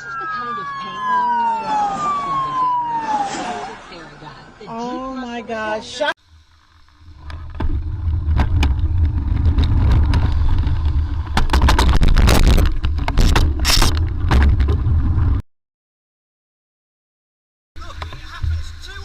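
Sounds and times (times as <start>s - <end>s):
road and wind rumble: 0.0s - 15.4s
harsh scraping noise: 6.8s - 14.7s
sharp knocks and clicks: 11.2s - 14.8s.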